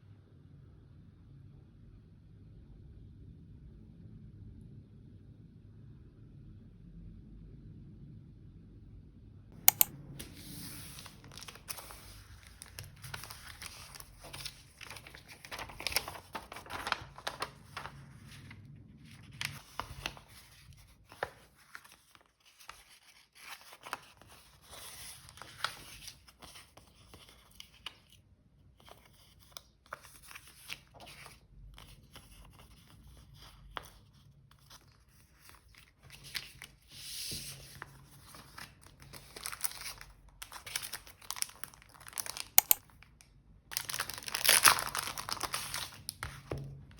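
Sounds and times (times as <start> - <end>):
sharp clicks: 9.6 - 9.9, 42.6 - 42.8
paper crinkling and tearing: 10.6 - 18.5, 37.7 - 42.8, 43.7 - 46.4.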